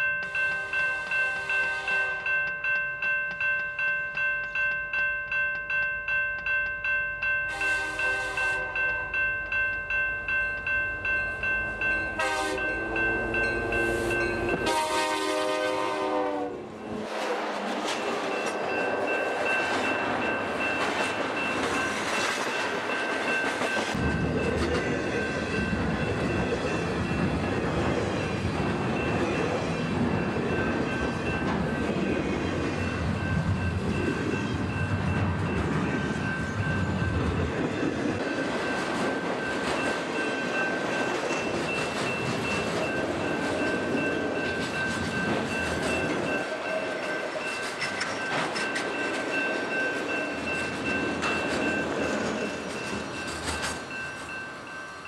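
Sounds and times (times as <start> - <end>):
bell ringing steadily: 0.0 - 17.0, 18.0 - 55.0
locomotive horn blasts: 0.6 - 2.4, 7.5 - 9.0, 12.1 - 17.1
heavy train rumble: 6.4 - 55.0
rush of train wheels: 16.6 - 54.7.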